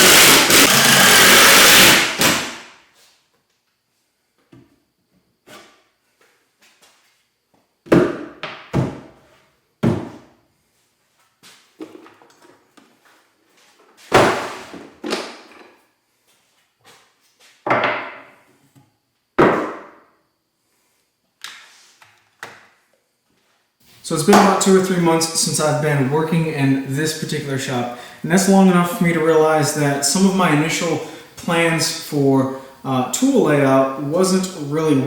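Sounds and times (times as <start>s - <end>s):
sharp knocks and thuds: 7.9s - 9.1s, 9.8s - 10.3s.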